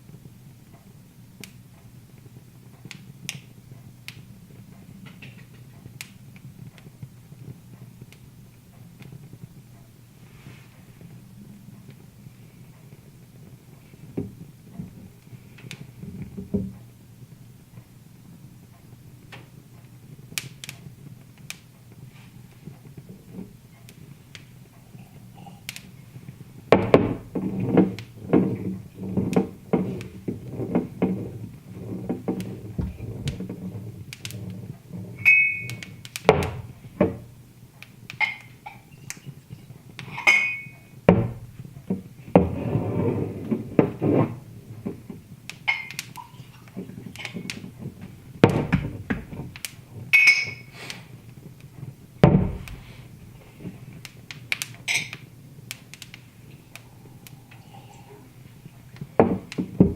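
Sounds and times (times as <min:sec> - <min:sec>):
low steady hum: 0:00.0 - 0:59.9
irregular knocks and thuds: 0:16.0 - 0:16.9, 0:26.7 - 0:35.2, 0:36.3 - 0:37.4, 0:41.1 - 0:45.3, 0:46.7 - 0:50.1, 0:52.2 - 0:53.8, 0:59.0 - 0:59.9
short glassy clinks: 0:35.2 - 0:35.8, 0:50.2 - 0:50.7.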